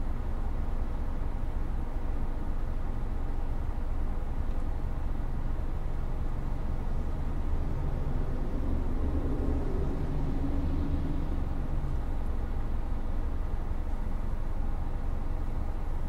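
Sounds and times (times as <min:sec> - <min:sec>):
air-conditioning fan noise: 0:00.0 - 0:16.0
road and tyre rumble: 0:00.0 - 0:16.0.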